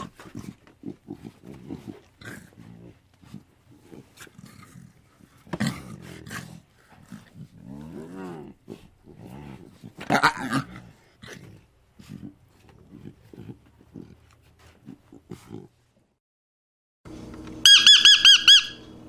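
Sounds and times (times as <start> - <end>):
animal calls: 17.4 - 19.0.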